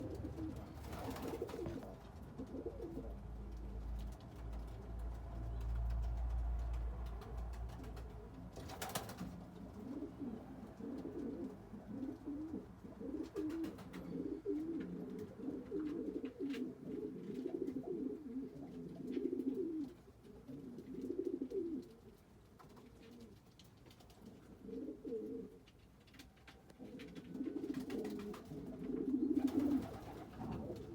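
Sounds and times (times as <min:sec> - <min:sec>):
pigeons cooing: 0:00.0 - 0:03.6, 0:07.2 - 0:22.1, 0:24.2 - 0:25.6, 0:26.8 - 0:30.9.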